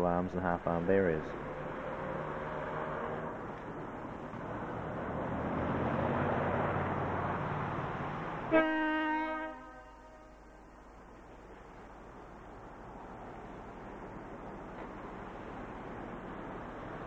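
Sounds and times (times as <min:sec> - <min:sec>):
freight train passing: 0:00.0 - 0:17.0
train horn blast: 0:08.5 - 0:10.9.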